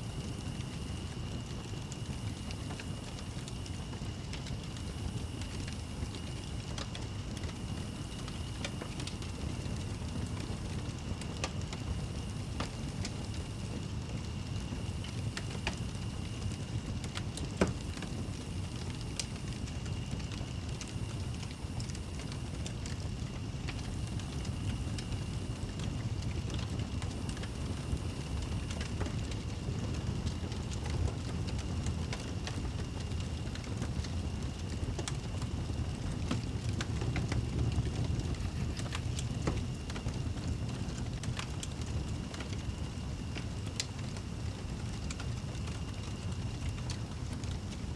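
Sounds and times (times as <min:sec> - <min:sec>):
wood fire crackling and popping: 0:00.0 - 0:47.9
low steady rumble: 0:33.2 - 0:42.5.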